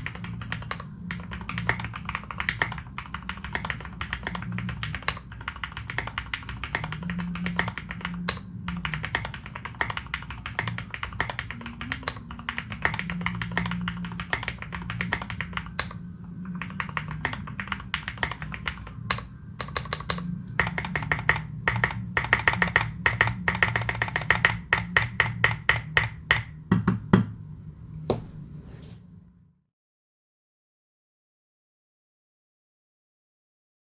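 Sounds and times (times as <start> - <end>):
mechanical keyboard typing: 0.0 - 26.6.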